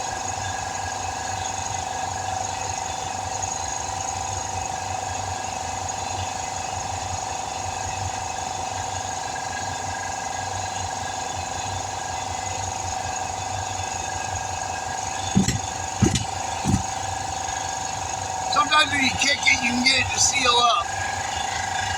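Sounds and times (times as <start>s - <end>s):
air compressor whining: 13.3s - 21.9s
heavy thump: 15.2s - 17.0s.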